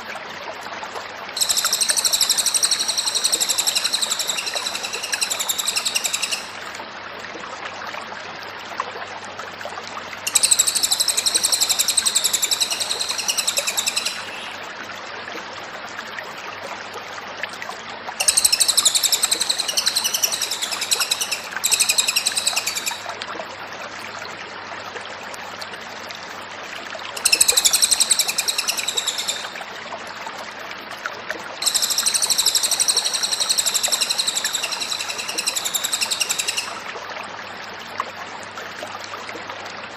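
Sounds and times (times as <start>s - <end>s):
songbird chattering: 1.4s - 6.5s, 10.3s - 14.6s, 18.2s - 23.1s, 27.2s - 29.6s, 31.6s - 36.8s.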